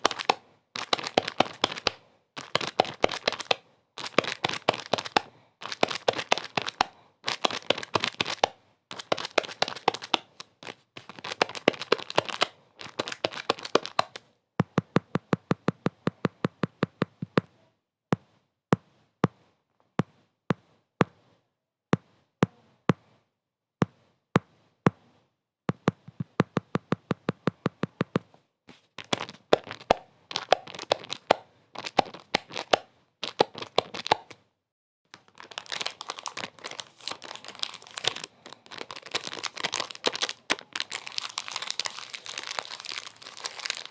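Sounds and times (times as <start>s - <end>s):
dry crackling and crinkling: 0.0s - 14.2s, 35.1s - 43.9s.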